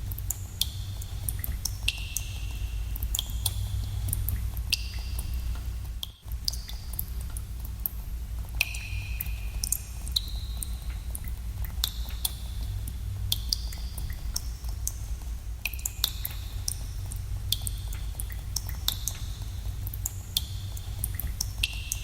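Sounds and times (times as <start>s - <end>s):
low cave room tone rumble: 0.0s - 22.0s
water drops plinking into pool: 8.6s - 12.4s.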